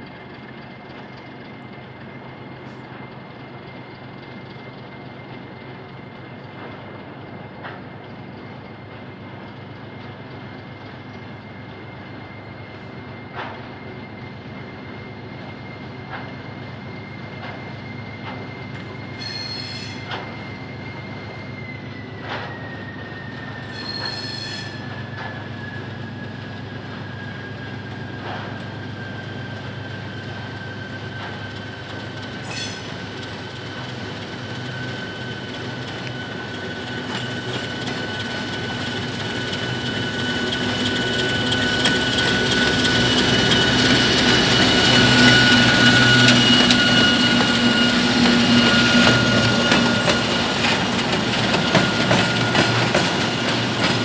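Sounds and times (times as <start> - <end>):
train wheels squealing: 0.0 - 54.0
shrill chirps: 32.4 - 54.0.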